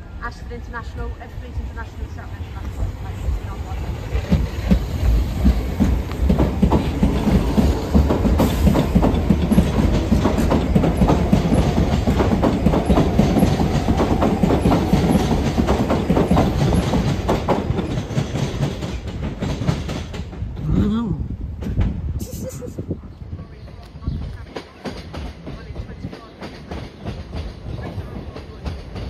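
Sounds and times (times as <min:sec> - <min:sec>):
train wheels clicking over joints: 0:01.7 - 0:20.9, 0:23.6 - 0:29.0.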